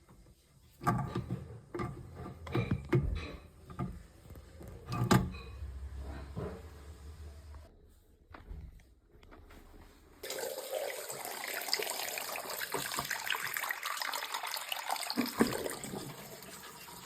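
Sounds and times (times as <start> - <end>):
small irregular knocks: 0.0 - 6.8
faucet water splashing into sink: 10.2 - 17.0.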